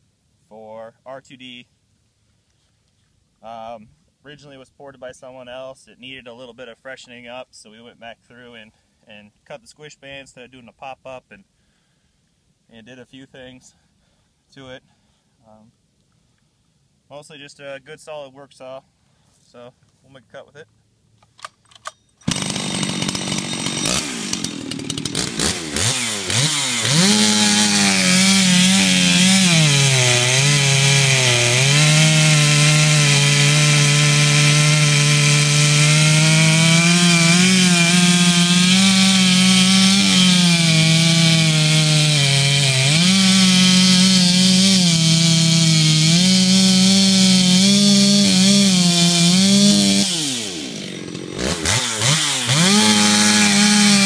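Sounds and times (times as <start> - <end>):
chainsaw revving and cutting wood: 22.2 - 54.0.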